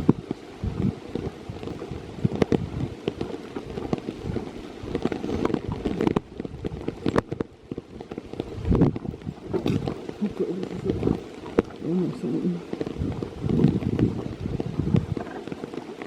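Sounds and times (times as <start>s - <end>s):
rain patter: 0.0s - 16.0s.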